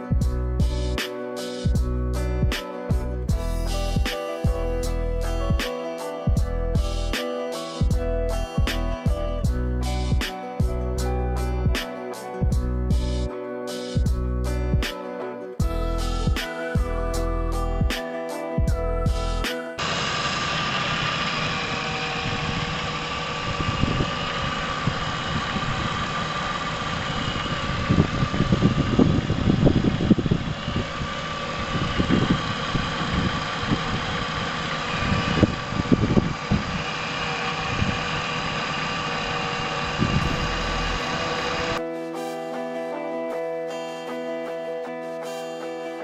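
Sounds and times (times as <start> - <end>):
irregular low thumps: 0.1 - 1.0, 1.7 - 5.6, 6.3 - 7.0, 7.8 - 9.9, 12.4 - 13.2, 14.0 - 14.9, 18.6 - 19.4
car engine idling: 18.7 - 41.8.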